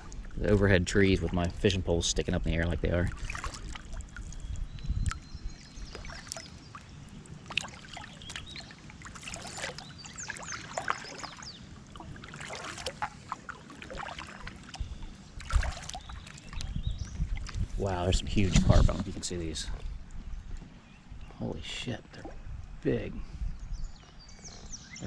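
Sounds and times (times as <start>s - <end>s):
wind rumbling on microphone: 0.0s - 10.5s, 13.9s - 25.0s
water splashing and dripping: 0.0s - 17.7s.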